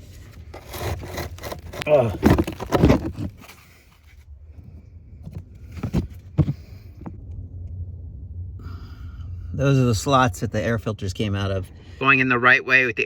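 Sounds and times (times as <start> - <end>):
plastic scraping: 0.0 - 4.1
low steady hum: 0.0 - 13.0.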